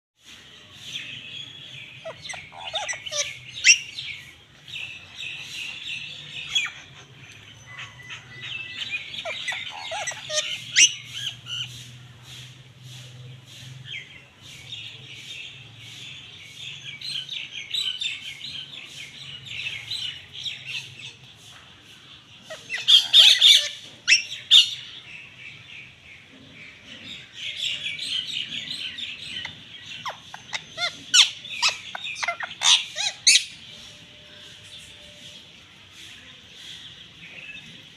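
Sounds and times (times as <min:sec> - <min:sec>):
parrots chirping and chattering: 0:00.8 - 0:37.9
loud parrot squawks: 0:02.0 - 0:04.0, 0:07.8 - 0:11.4, 0:22.5 - 0:24.7, 0:30.0 - 0:33.6.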